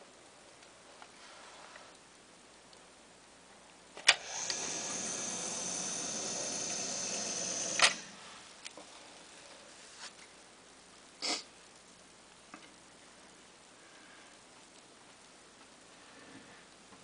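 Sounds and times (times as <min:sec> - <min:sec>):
sump pump whining: 0:04.0 - 0:08.5.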